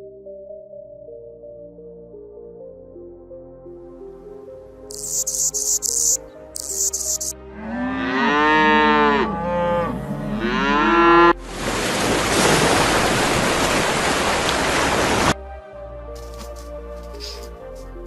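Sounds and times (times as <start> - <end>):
cow mooing: 7.5 - 11.4.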